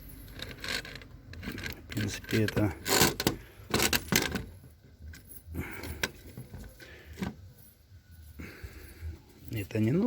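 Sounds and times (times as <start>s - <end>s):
metal lock parts clicking: 0.2s - 5.3s.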